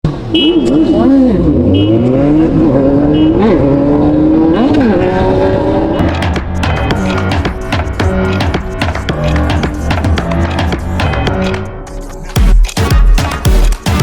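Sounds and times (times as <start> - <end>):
sport-bike engine accelerating: 0.8 - 10.4
music with a beat: 6.0 - 14.0.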